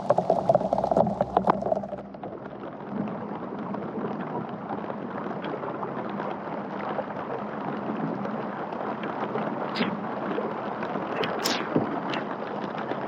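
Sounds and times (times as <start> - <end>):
rain hissing: 9.8 - 12.5.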